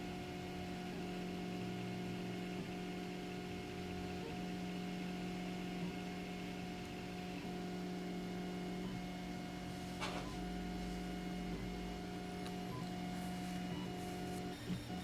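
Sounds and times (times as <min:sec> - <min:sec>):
printer stepper motors humming: 0:08.3 - 0:15.0.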